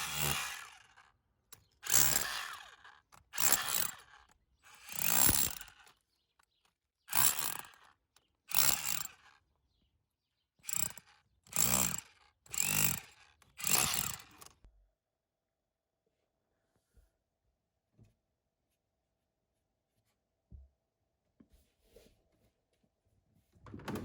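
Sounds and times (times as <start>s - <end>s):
rotary hammer bursts: 1.6s - 6.0s, 7.1s - 9.3s, 10.6s - 14.6s.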